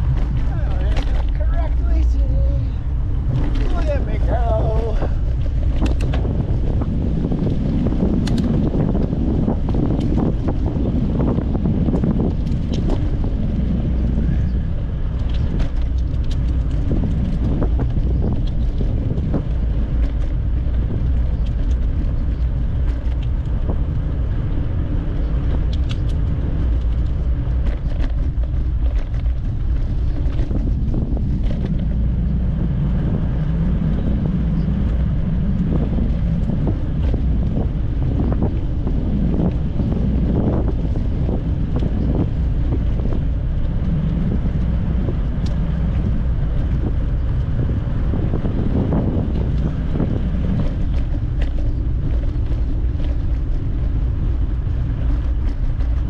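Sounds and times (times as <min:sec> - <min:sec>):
wind buffeting microphone: 0:00.0 - 0:56.0
small clicks: 0:25.7 - 0:29.4.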